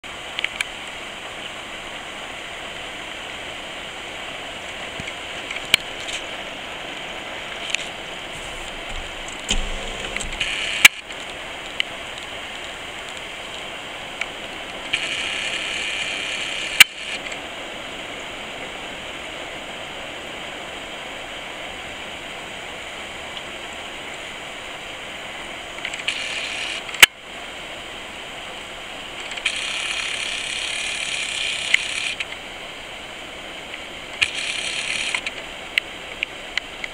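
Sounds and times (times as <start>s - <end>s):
rain falling: 0.1s - 36.9s
sharp loud clicks: 8.4s - 11.1s, 29.3s - 32.3s, 34.2s - 35.4s.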